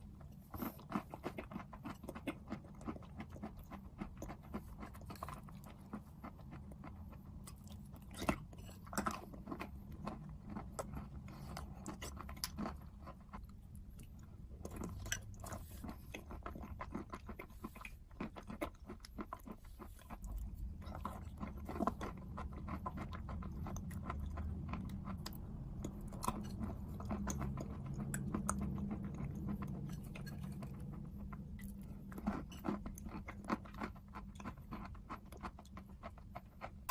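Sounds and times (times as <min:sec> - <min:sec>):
chewing crunchy food: 0:00.0 - 0:36.9
steady low hum: 0:00.0 - 0:36.9.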